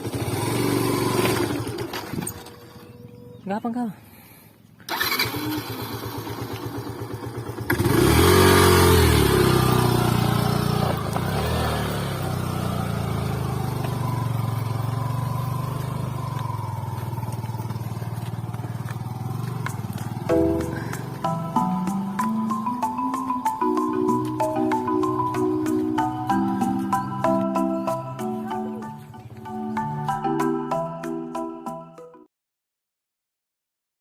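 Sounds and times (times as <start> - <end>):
motorcycle engine revving: 0.0 - 3.0, 4.9 - 27.3.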